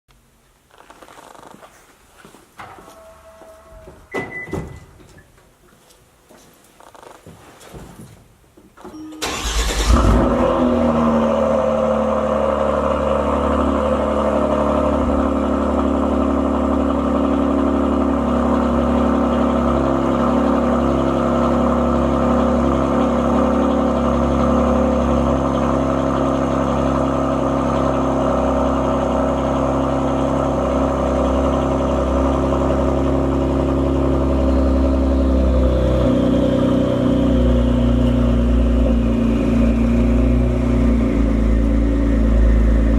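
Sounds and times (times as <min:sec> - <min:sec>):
car engine cold start and idle: 0:08.9 - 0:42.9.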